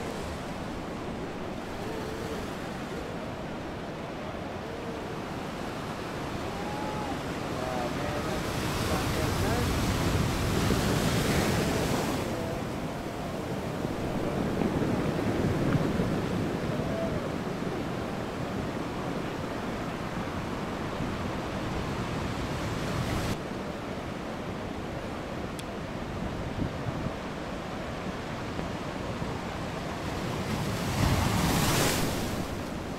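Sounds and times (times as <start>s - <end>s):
wind buffeting microphone: 0.0s - 23.4s
ocean surf breaking: 0.0s - 32.9s.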